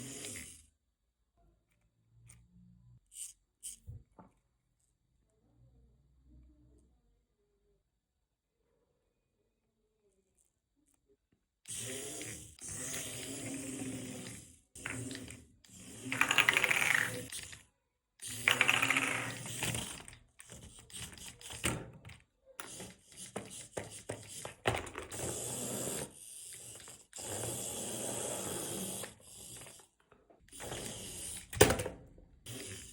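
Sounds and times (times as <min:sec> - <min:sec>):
toy car electric motor whirring: 0:00.0 - 0:00.8, 0:02.3 - 0:04.0, 0:11.7 - 0:32.9.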